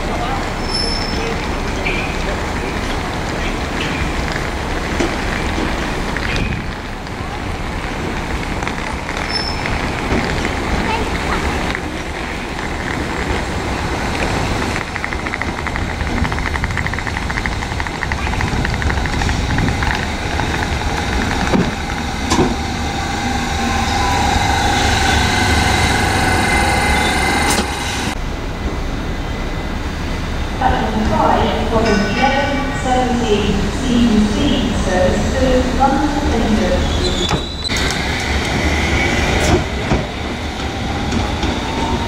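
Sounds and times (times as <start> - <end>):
train wheels rumbling on rail: 0.0 - 42.0
train high whine: 16.1 - 42.0.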